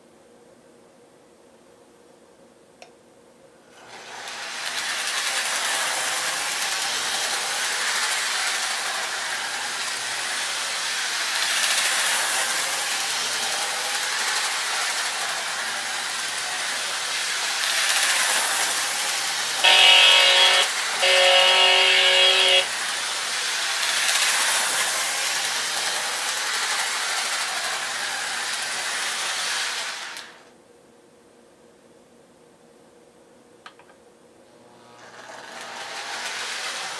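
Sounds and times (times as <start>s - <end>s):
click: 2.8s - 3.0s
model train motor and wheels: 3.8s - 30.4s, 34.9s - 36.9s
train horn chord: 19.6s - 22.9s.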